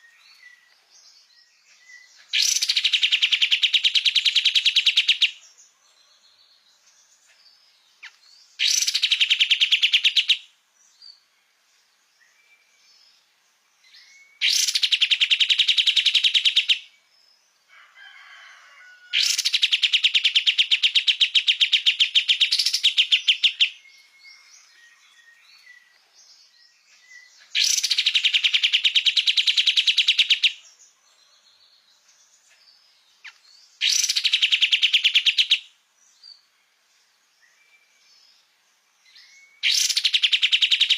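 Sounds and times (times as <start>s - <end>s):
songbird fast chattering trills: 2.2s - 5.4s, 8.6s - 10.5s, 14.4s - 16.9s, 19.2s - 23.8s, 27.4s - 30.6s, 33.2s - 35.7s, 39.6s - 40.9s.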